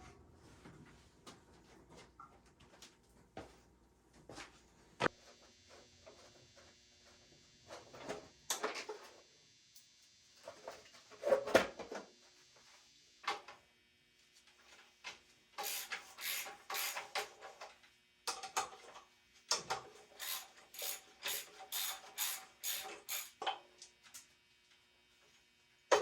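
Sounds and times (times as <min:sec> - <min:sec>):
hand tools rasping on metal: 0:15.6 - 0:17.1, 0:20.2 - 0:23.3.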